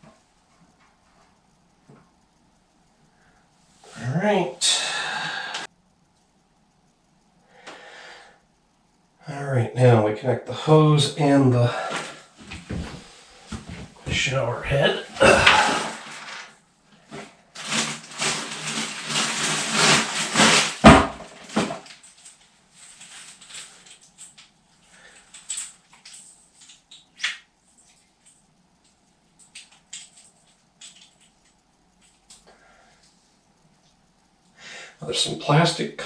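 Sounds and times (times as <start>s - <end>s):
plastic packaging rustling: 15.2s - 24.4s
fittings clicking and tapping: 25.3s - 32.5s.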